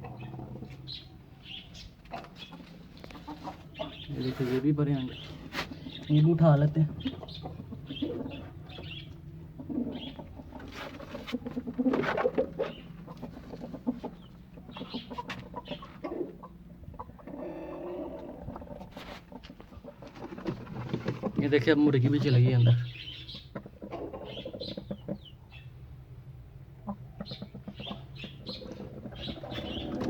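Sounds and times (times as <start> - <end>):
pigeons cooing: 0.0 - 21.5, 22.2 - 25.6, 26.8 - 30.0
chickens clucking: 0.0 - 30.0.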